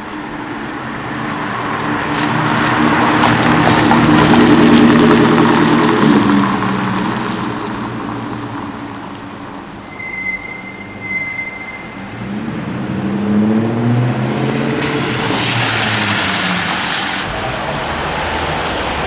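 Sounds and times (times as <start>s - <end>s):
tyre and road noise: 0.0s - 19.0s
short high beeps: 9.9s - 12.1s
car engine accelerating past: 12.1s - 19.0s.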